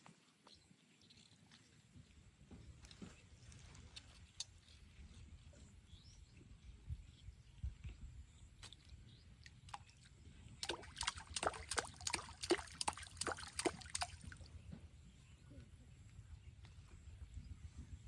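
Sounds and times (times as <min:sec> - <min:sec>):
water splashing: 0:10.6 - 0:14.5.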